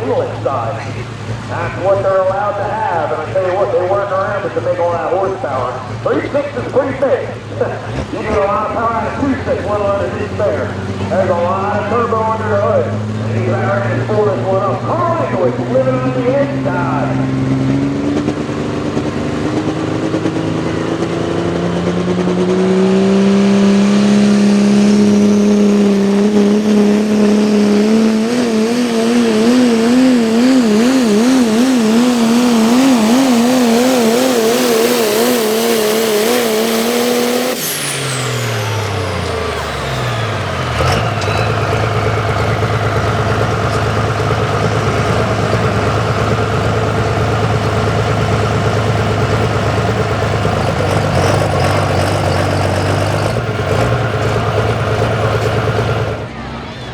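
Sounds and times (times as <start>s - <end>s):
diesel truck engine revving: 0.0s - 56.9s.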